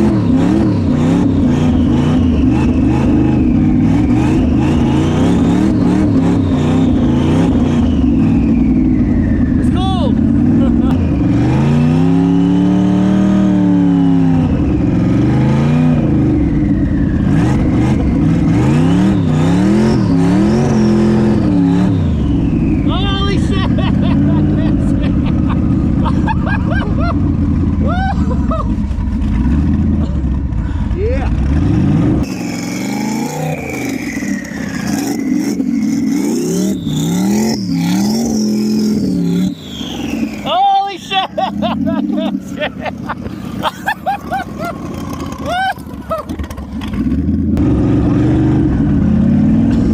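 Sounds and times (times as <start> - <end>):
turbo whine: 0.0 - 29.4, 32.1 - 42.7
car engine revving: 0.0 - 49.9.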